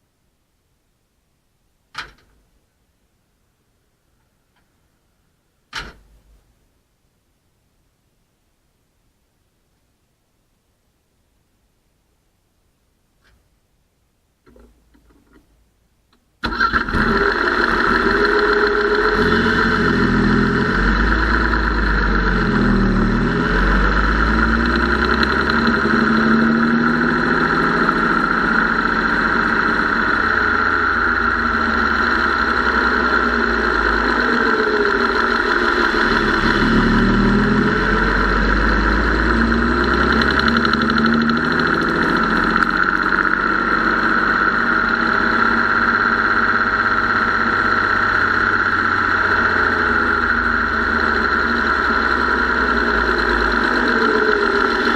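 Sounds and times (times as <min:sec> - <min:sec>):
engine ticking top-end noise: 0:16.1 - 0:54.9
car engine running: 0:16.4 - 0:54.9.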